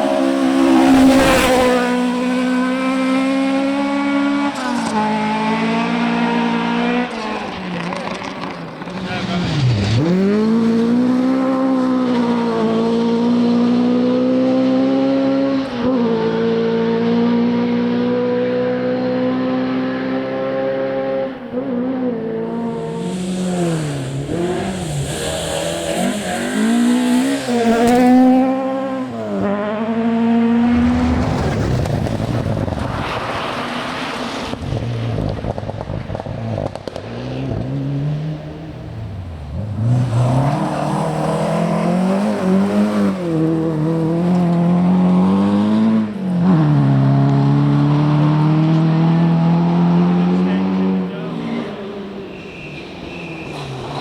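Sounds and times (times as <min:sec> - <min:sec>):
car passing rush: 0:00.0 - 0:54.0
rally car engine at full throttle: 0:00.0 - 0:54.0
second engine note rising: 0:30.5 - 0:32.8.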